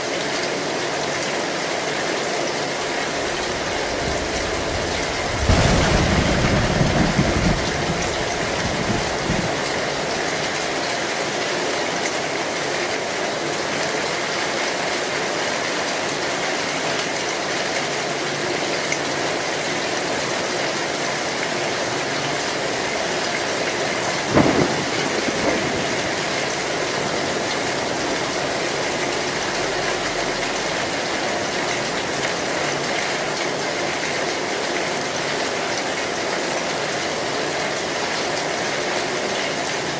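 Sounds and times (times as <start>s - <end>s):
rain on a metal roof: 0.0s - 39.9s
thunder rumbling: 2.8s - 11.1s, 21.7s - 32.9s
sharp crack: 3.1s - 10.6s.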